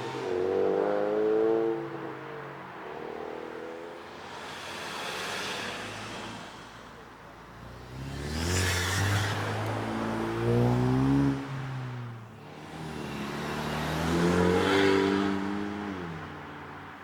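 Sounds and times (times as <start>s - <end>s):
car engine accelerating: 7.6s - 11.9s, 12.5s - 16.2s.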